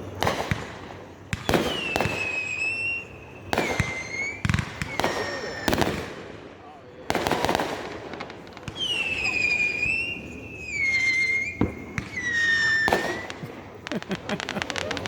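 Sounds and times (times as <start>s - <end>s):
crackling firework pops: 0.0s - 6.5s, 7.1s - 15.0s
firework bangs: 0.0s - 15.0s
whistling fireworks: 0.0s - 15.0s.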